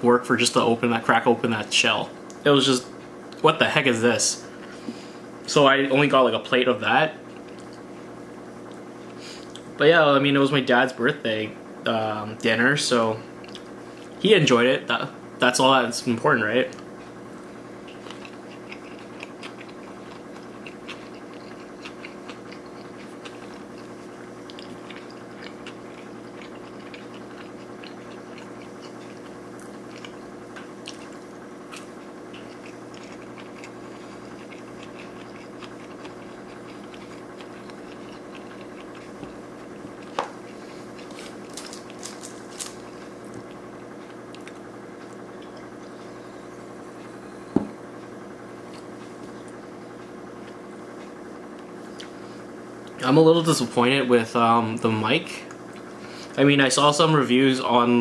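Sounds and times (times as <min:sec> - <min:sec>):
steady low hum: 0:00.0 - 0:58.0
close chewing with wet mouth clicks: 0:17.8 - 0:41.2.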